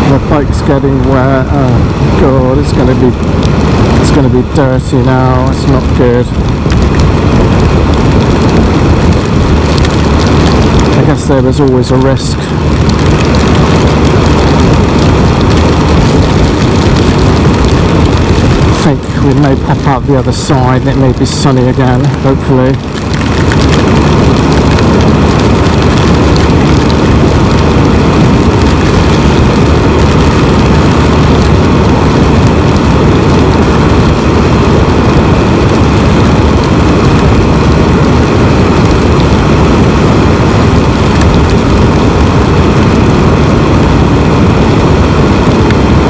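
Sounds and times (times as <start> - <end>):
motorcycle engine drone: 0.0 - 46.0
road noise: 0.0 - 46.0
wind rush: 0.0 - 46.0.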